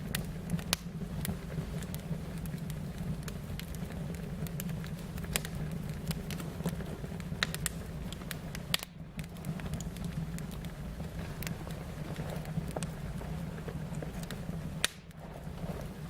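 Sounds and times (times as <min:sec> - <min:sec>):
fire crackling: 0:00.0 - 0:16.0.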